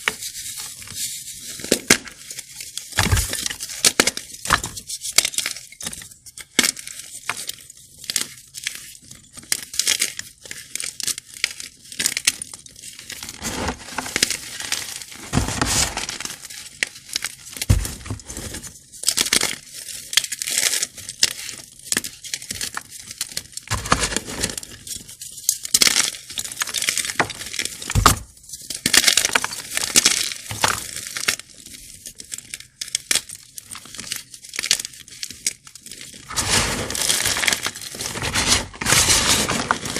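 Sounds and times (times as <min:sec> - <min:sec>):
chalk blocks crunching: 0:13.0 - 0:25.1, 0:33.9 - 0:39.9.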